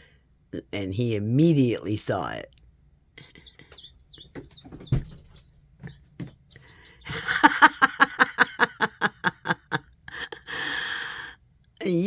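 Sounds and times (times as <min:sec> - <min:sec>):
recorded birdsong through speaker: 0:00.6 - 0:09.0.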